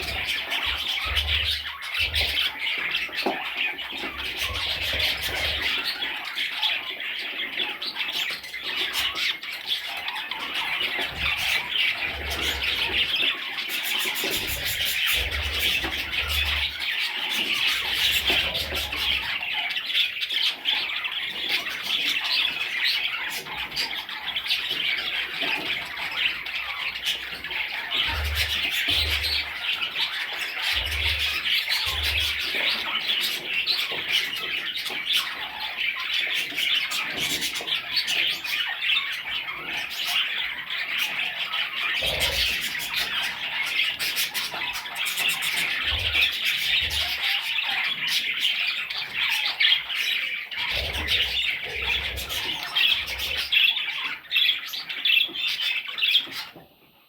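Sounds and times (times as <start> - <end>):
budgerigars chirping and squawking: 0.0 - 57.0.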